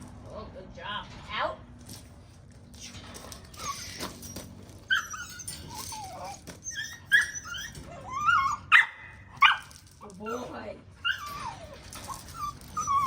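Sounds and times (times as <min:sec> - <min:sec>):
puppies whining and yipping: 0:02.8 - 0:13.0.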